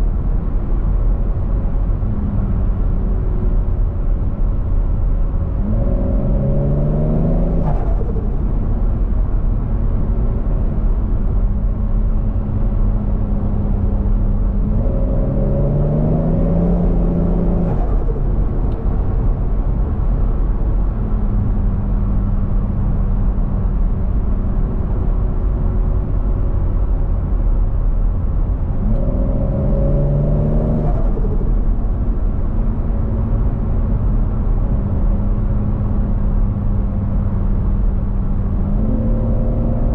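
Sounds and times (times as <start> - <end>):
road rumble: 0.0 - 39.9
car engine accelerating: 0.9 - 22.8, 28.2 - 39.9.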